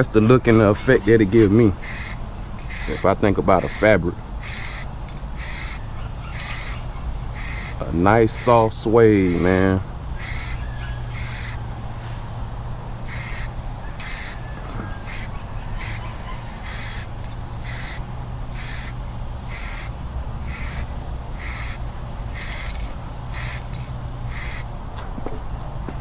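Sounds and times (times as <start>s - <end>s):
steady low hum: 0.0s - 26.0s
spray paint hissing bursts: 1.7s - 11.7s, 13.0s - 24.8s.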